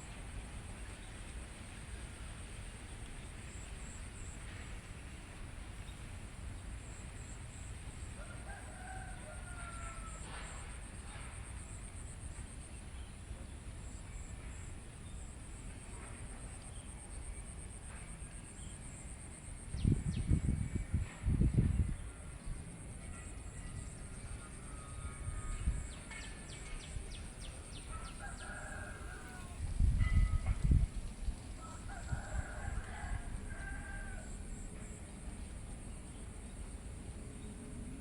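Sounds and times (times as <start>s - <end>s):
rooster crowing: 8.2s - 10.4s, 27.7s - 29.7s, 31.6s - 34.4s.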